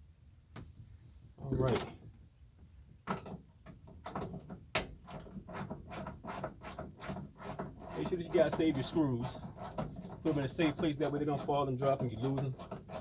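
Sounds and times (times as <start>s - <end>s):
screwdriver turning screws: 5.1s - 13.0s.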